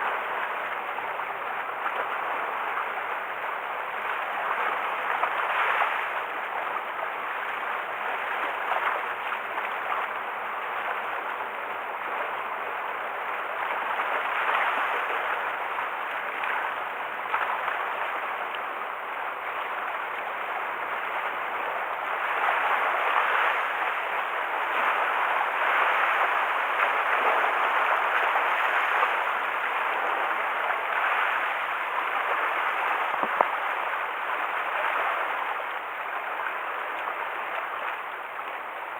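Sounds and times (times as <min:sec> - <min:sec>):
sea water splashing against shore: 0:20.6 - 0:38.9.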